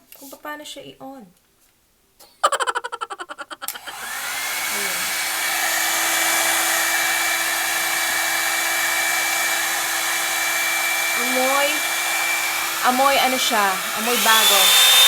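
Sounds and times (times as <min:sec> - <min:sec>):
hair dryer fast rattle: 0:03.6 - 0:15.0
hair dryer blowing with whine: 0:03.7 - 0:15.0.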